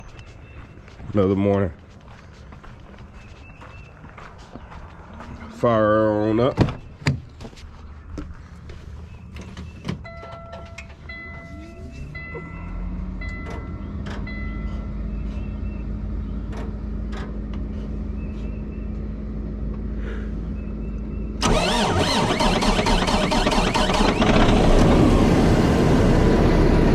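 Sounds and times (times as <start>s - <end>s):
dashboard warning chime beeps: 10.0s - 14.9s
truck engine starting and idling: 12.1s - 26.9s.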